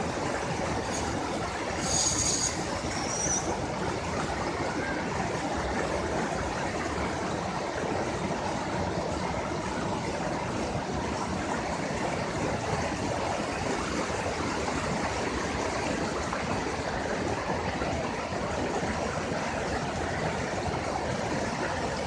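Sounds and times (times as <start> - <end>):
waterfall roaring: 0.0 - 22.0
high-pitched squeal: 1.8 - 3.5.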